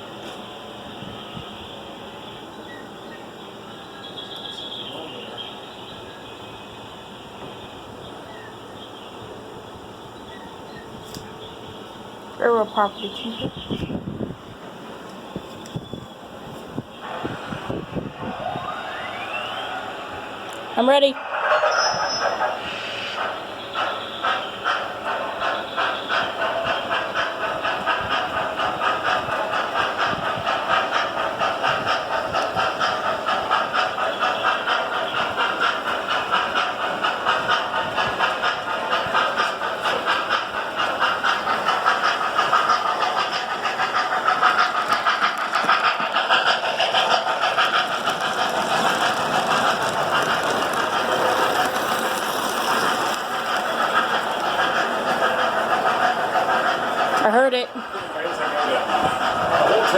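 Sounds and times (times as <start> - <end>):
model steam locomotive chuffing: 0.0 - 59.9
steam hiss: 13.0 - 59.9.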